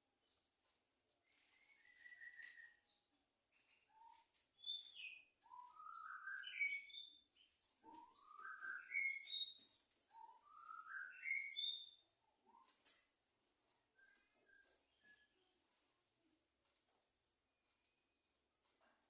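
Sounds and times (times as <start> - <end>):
bird whistling rising notes: 1.3 - 2.9, 4.0 - 7.1, 7.9 - 9.5, 10.1 - 11.9.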